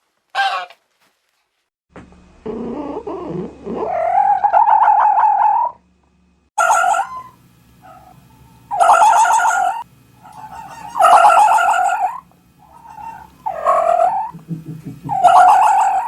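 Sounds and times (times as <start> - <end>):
animal honk: 0.4 - 0.8, 6.6 - 14.3
animal growl rising into yowl: 2.4 - 5.8.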